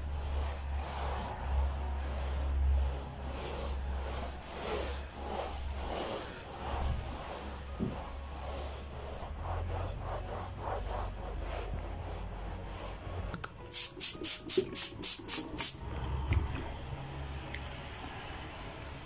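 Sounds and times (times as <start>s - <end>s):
steady low hum: 0.0s - 13.3s
rhythmic scraping strokes: 0.0s - 16.0s.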